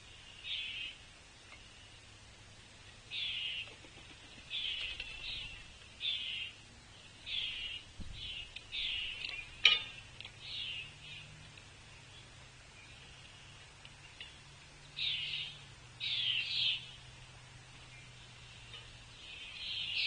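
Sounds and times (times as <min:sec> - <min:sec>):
bird harsh buzzy calls: 0:03.1 - 0:06.6.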